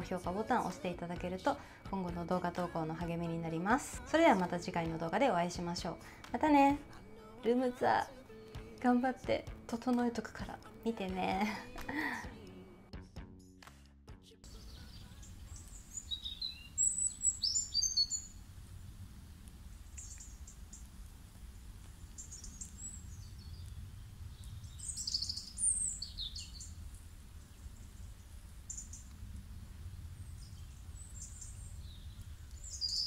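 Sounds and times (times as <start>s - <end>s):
small birds chirping: 14.5s - 33.0s
low steady rumble: 18.2s - 33.0s.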